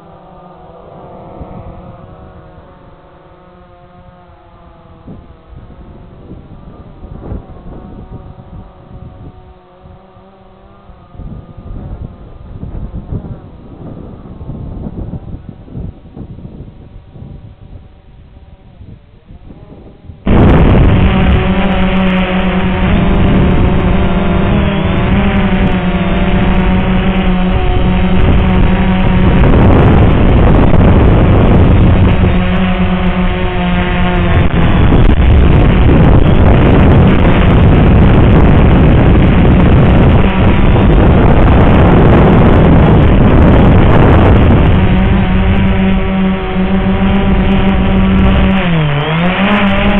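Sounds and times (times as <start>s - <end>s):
drone motors buzzing: 0.0s - 49.9s
wind noise on microphone: 0.0s - 49.9s.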